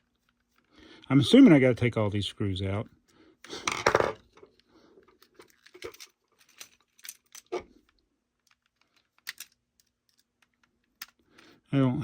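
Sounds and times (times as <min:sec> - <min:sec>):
plastic toy shell handled: 0:05.2 - 0:11.2.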